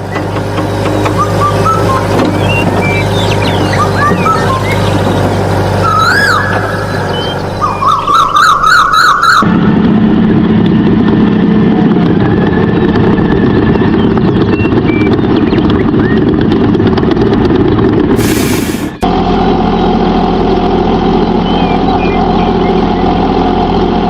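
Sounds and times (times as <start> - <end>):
engine-like rumbling: 0.0 - 24.0
motor hum with glides: 0.0 - 24.0
warbling siren-like tone: 1.1 - 10.4.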